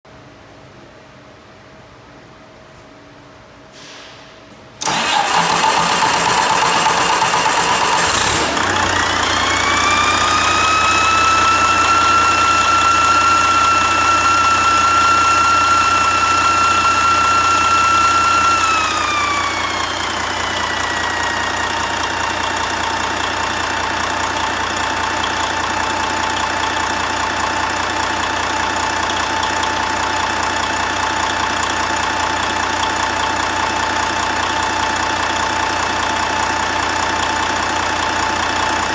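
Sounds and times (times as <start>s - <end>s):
engine high whine: 4.8s - 30.3s
diesel engine running: 4.8s - 38.9s
starter cranking engine: 4.8s - 38.9s.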